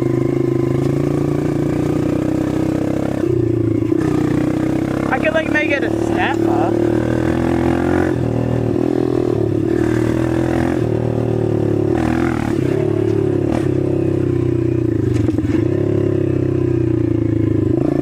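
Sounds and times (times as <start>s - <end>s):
dirt bike engine running: 0.0s - 18.0s.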